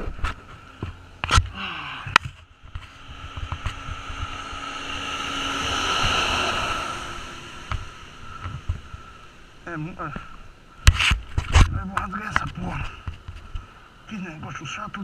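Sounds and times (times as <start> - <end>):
vehicle passing on road: 0.0 - 11.4.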